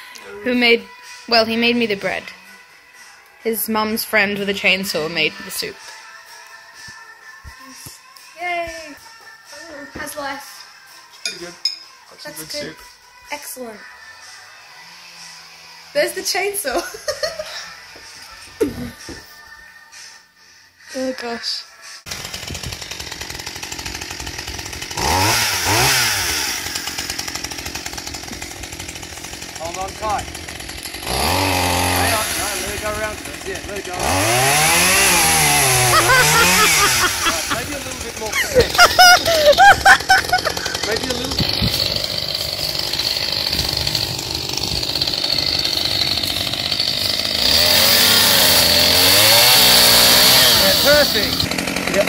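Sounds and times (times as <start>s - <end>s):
chainsaw idling and revving: 13.8s - 17.3s, 22.1s - 52.0s.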